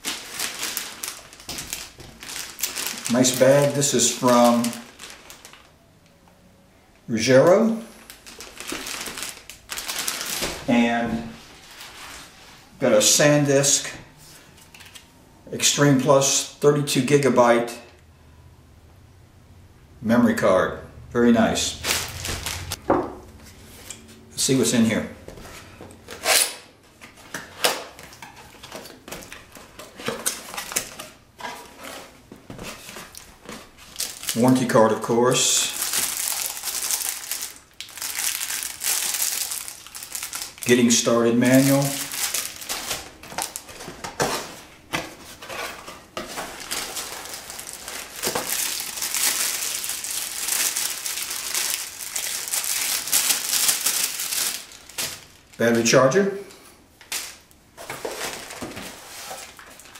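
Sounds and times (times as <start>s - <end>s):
plastic packaging crinkling: 0.0s - 5.8s, 7.9s - 12.4s, 21.7s - 22.8s, 28.0s - 34.8s, 35.4s - 55.9s, 57.0s - 59.9s.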